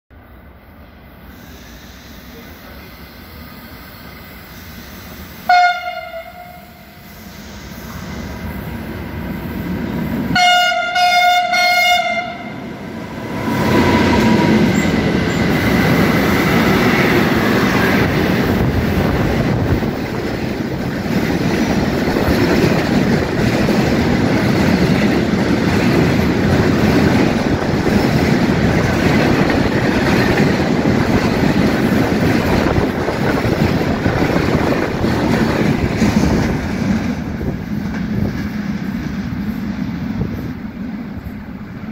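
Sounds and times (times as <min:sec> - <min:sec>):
train horn blasts: 0:05.4 - 0:07.1, 0:10.3 - 0:12.6
freight wagons rumbling on rails: 0:12.4 - 0:41.9.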